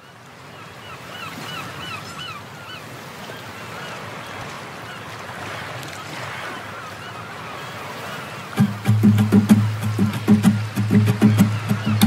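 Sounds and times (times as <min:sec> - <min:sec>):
surf washing: 0:00.2 - 0:12.0
bird calls: 0:00.4 - 0:12.0.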